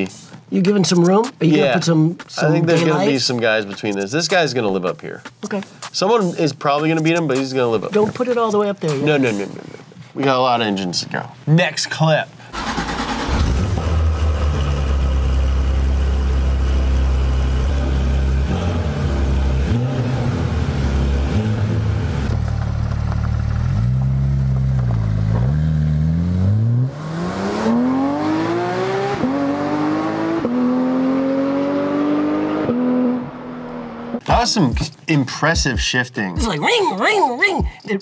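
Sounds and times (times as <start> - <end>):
car engine idling and revving: 12.6 - 34.2
car accelerating through gear shifts: 17.8 - 34.2.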